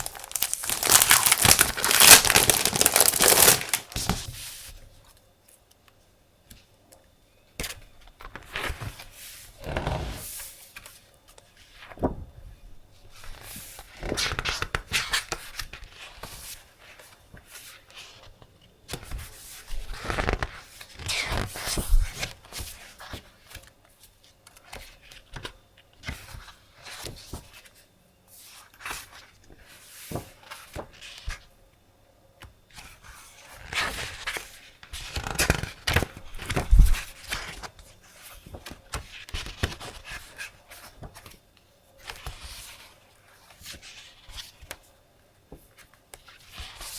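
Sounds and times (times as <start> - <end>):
paper rustling and sliding: 0.0 - 4.9.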